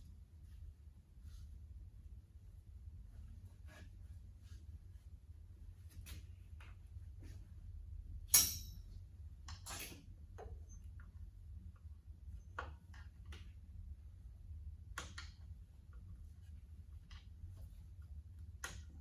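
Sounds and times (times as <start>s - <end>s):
sharp ringing metal clank: 8.3s - 8.8s.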